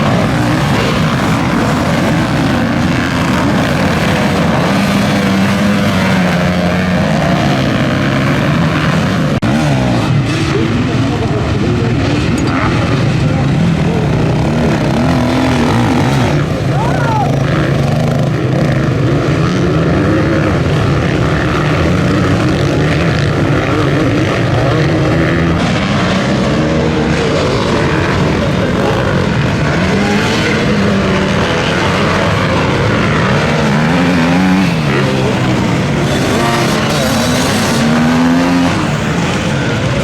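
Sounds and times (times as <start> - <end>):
motocross bike engines revving: 0.0 - 40.0.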